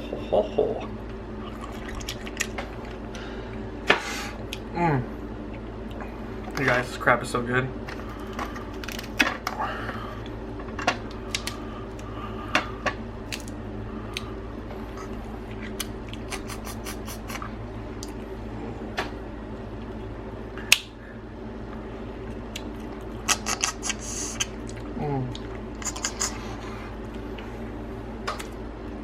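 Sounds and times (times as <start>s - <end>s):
steady low hum: 0.0s - 29.0s
crab shells cracking: 8.2s - 9.6s, 10.9s - 11.6s, 13.3s - 13.6s.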